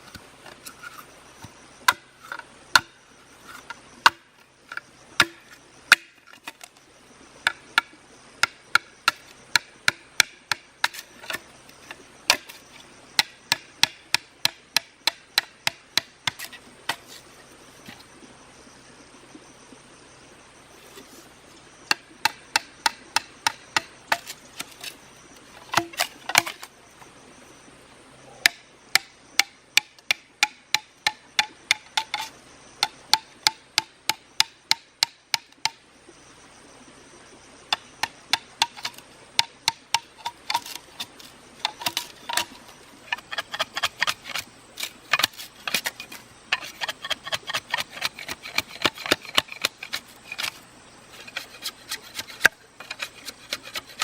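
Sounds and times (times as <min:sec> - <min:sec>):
blade chopping bamboo: 0:00.1 - 0:04.3, 0:05.2 - 0:06.7, 0:07.5 - 0:11.4, 0:12.3 - 0:17.2, 0:21.9 - 0:25.0, 0:25.6 - 0:26.7, 0:28.4 - 0:35.8, 0:37.7 - 0:54.0.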